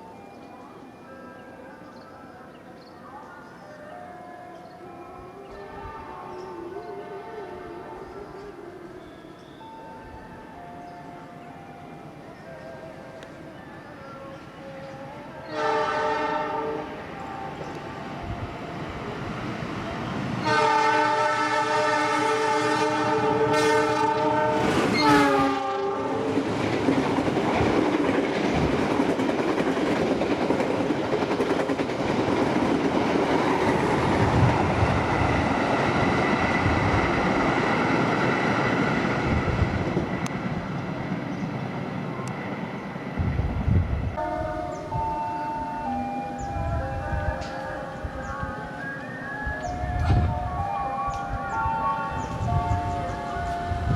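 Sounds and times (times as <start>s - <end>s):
locomotive horn blasts: 15.4s - 17.1s, 20.4s - 26.3s, 44.2s - 46.8s.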